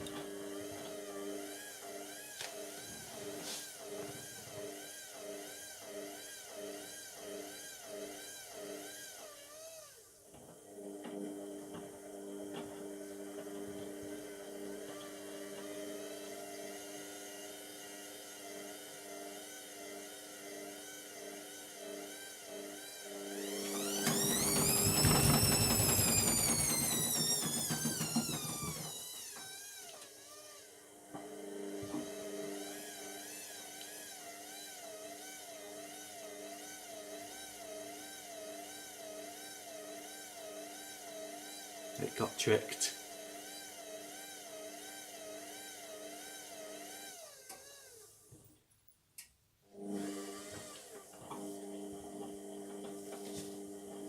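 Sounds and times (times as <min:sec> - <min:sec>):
washing machine motor whine: 0:00.0 - 0:09.9, 0:10.6 - 0:48.3, 0:49.7 - 0:54.0
washing machine drum turning: 0:23.8 - 0:29.0.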